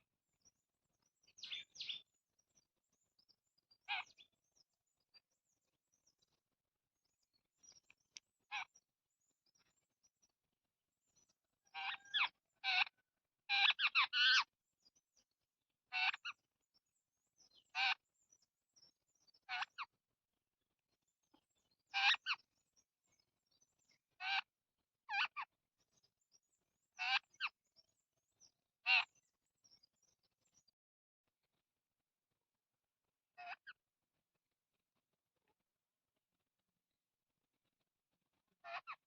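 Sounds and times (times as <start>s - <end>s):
birds calling harshly: 1.2s - 2.1s, 3.8s - 4.6s, 11.6s - 14.5s, 19.3s - 19.9s, 21.9s - 22.5s, 26.9s - 27.6s, 28.4s - 29.9s, 38.6s - 39.0s.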